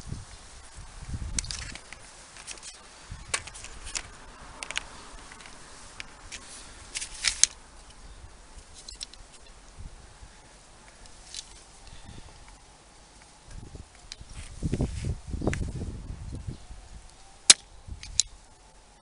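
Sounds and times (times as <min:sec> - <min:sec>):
hand tool snipping cable: 0:01.4 - 0:08.0, 0:17.5 - 0:18.3.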